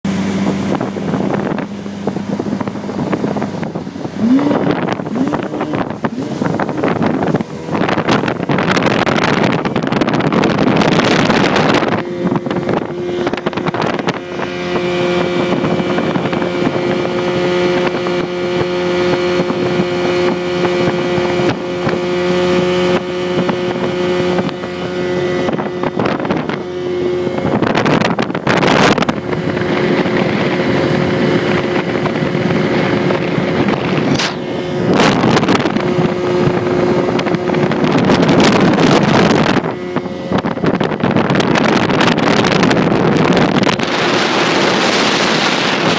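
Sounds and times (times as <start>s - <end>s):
speedboat motor running: 0.0s - 45.9s
wind gusts on microphone: 0.0s - 45.9s.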